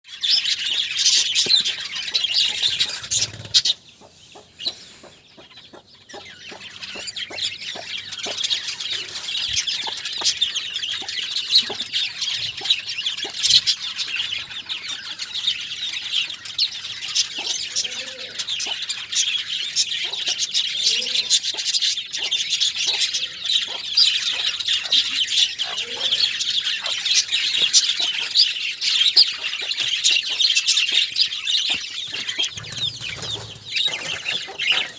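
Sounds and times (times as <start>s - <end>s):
budgerigars chattering: 0.1s - 34.9s.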